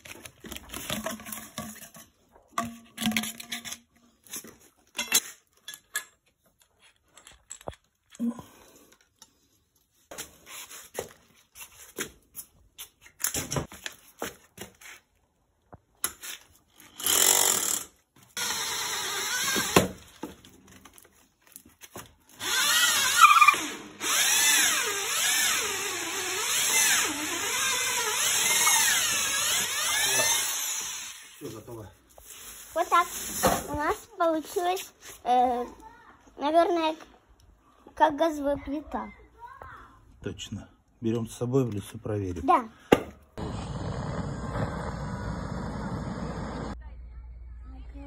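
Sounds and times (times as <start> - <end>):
power drill boring into wood: 16.9 - 20.0, 22.4 - 31.4.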